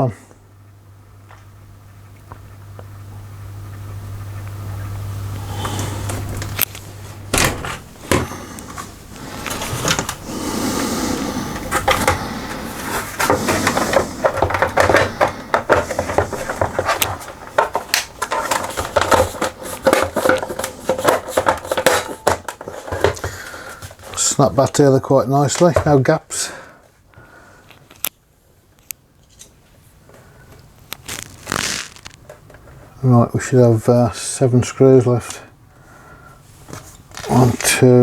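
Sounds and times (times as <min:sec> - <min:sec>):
plastic casing clicks and knocks: 0:13.2 - 0:23.9.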